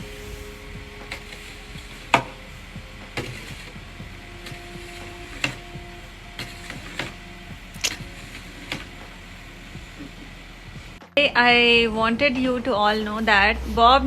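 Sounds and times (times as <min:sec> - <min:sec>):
snow shovel knocking and scraping: 0:00.0 - 0:11.0
low background hum: 0:00.0 - 0:14.0.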